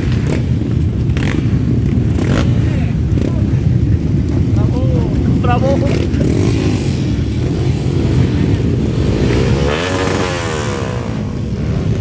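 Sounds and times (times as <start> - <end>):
engine revving: 0.0 - 3.7, 4.4 - 12.0
motorcycle engines rumbling: 0.0 - 12.0.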